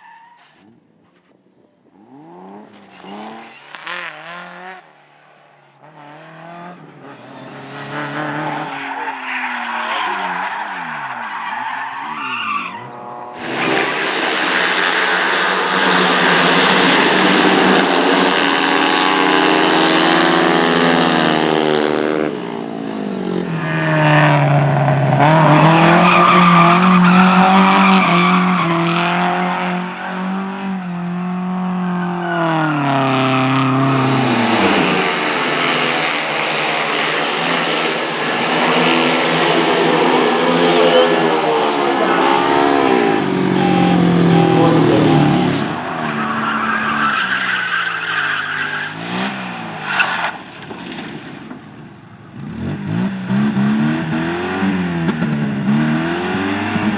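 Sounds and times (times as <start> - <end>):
tyres skidding: 7.2 - 15.5
race car engine revving: 7.6 - 18.0, 39.6 - 45.9.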